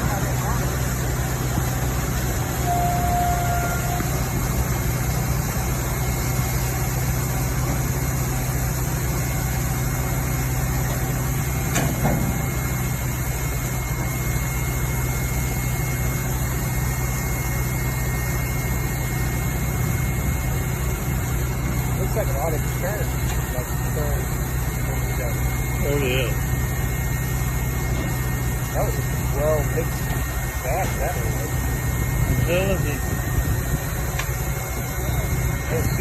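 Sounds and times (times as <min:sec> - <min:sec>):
truck engine idling: 0:00.0 - 0:36.0.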